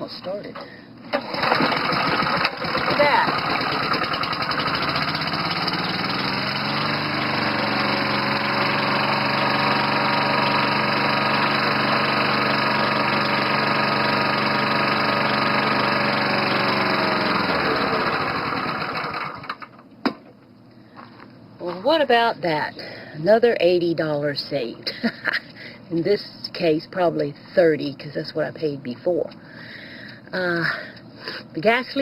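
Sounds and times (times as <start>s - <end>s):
lawn mower engine running: 1.1s - 19.8s.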